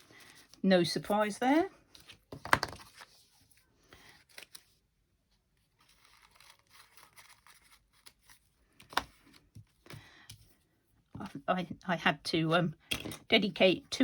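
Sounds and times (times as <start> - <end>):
soft rustling of paper: 0.0 - 11.4
paper crackle: 5.7 - 9.4.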